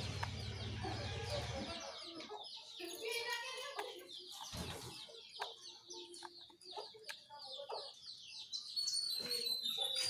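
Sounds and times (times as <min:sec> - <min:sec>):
bird singing descending chirps: 0:08.0 - 0:10.0.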